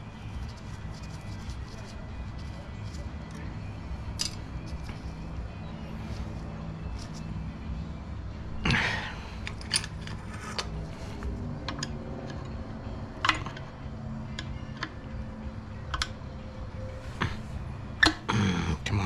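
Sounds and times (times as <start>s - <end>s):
steady low hum: 0.0s - 19.0s
small metal parts clicking: 4.1s - 5.0s, 9.4s - 10.7s.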